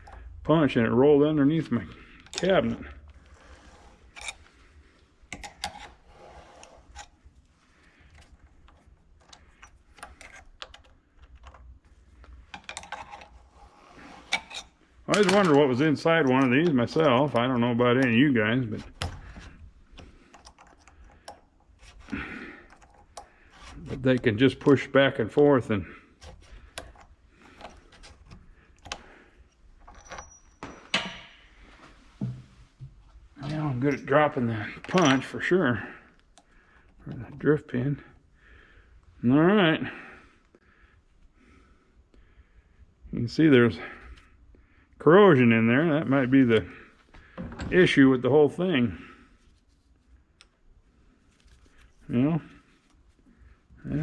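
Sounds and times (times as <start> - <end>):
metallic clicks of tools handled: 8.1 - 13.4.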